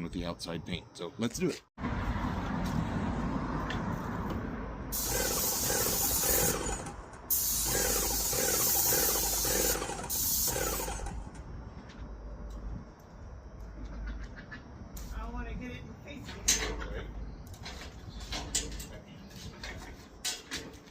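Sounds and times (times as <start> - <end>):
paint spray gun hissing: 4.9 - 11.3.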